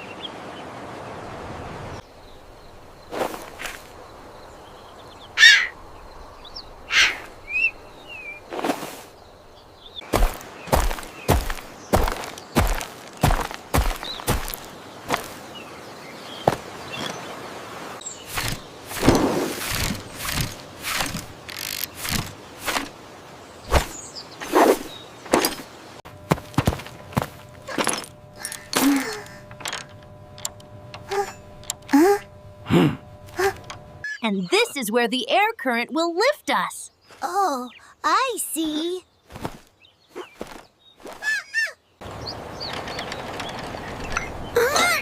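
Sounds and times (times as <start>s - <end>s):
small birds chirping: 0.0s - 29.5s, 30.5s - 45.0s
harsh cawing bird calls: 5.2s - 5.8s, 6.8s - 7.8s.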